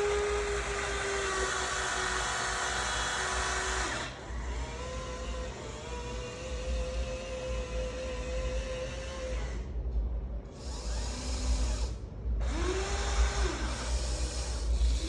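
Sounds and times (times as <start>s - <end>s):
electric motors whining: 0.0s - 9.8s, 10.5s - 15.0s.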